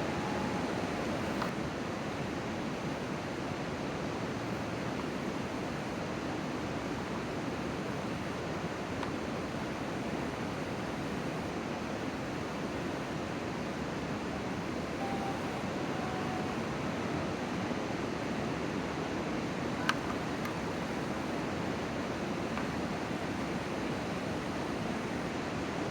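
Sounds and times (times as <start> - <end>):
faint short steady tone: 0.0 - 1.5, 15.0 - 17.6.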